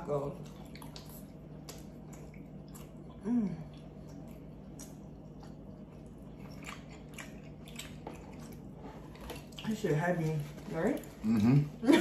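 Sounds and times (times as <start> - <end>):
chewing and biting tacos: 0.3 - 9.8, 10.4 - 11.8
person humming mm: 11.2 - 11.7.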